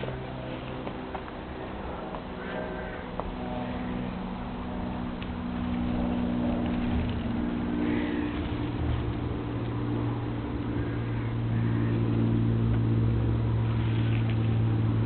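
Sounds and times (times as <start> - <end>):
motor engine hum: 0.0 - 15.0.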